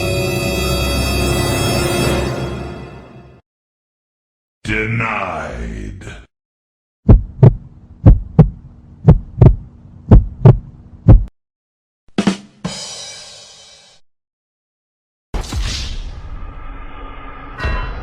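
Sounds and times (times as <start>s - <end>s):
heartbeat thumps: 7.0s - 11.3s
steady low hum: 7.1s - 11.3s.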